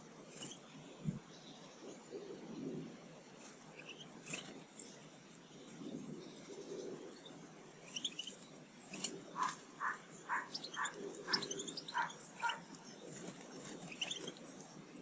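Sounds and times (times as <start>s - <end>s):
birds chirping: 0.1s - 15.0s
repeated bird call notes: 7.8s - 14.7s.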